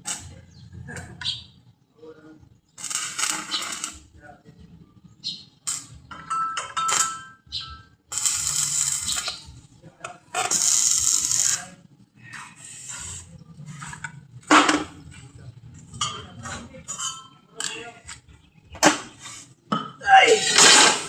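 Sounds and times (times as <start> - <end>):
sharp metallic clank: 5.7 - 8.4, 20.3 - 21.0.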